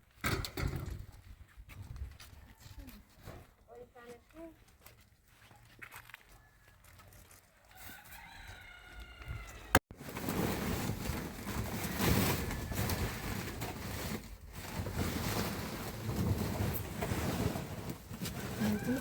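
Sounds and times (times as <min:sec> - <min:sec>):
rooster crowing: 0:06.3 - 0:09.8.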